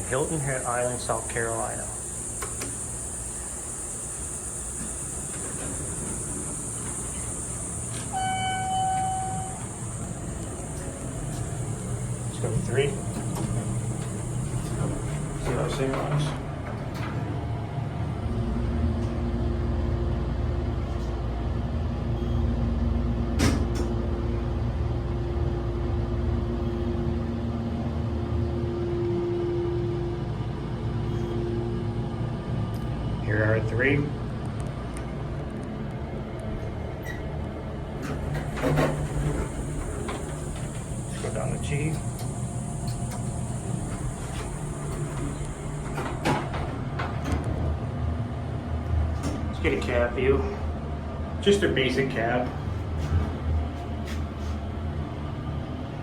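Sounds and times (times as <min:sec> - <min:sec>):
hydraulic pump two-tone hum: 0:00.0 - 0:21.4, 0:36.4 - 0:54.8
elevator low rumble: 0:00.0 - 0:56.0.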